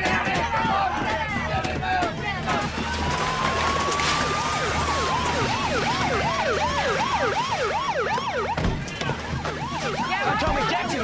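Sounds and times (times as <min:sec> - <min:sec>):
police siren wail: 0:02.7 - 0:11.0
police siren yelp: 0:03.1 - 0:11.0.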